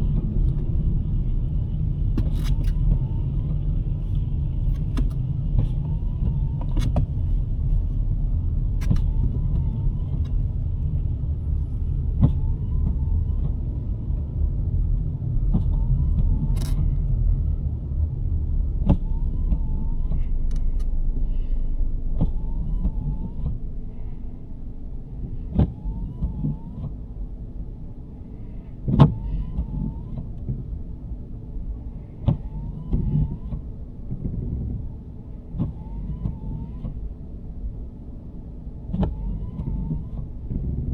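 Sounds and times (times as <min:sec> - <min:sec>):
low road rumble: 0:00.0 - 0:40.9
windshield wipers clicking and squeaking: 0:00.1 - 0:10.8, 0:12.1 - 0:14.4, 0:15.4 - 0:17.0, 0:18.8 - 0:21.0, 0:22.2 - 0:23.6, 0:25.2 - 0:27.1, 0:28.8 - 0:30.8, 0:32.1 - 0:37.3, 0:38.8 - 0:40.9.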